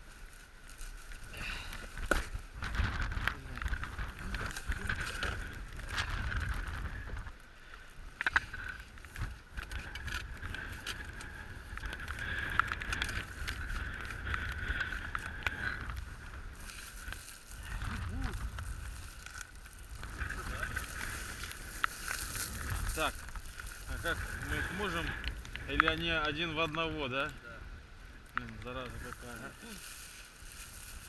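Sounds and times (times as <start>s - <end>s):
wind on microphone: 1.4s - 7.4s, 8.0s - 26.4s.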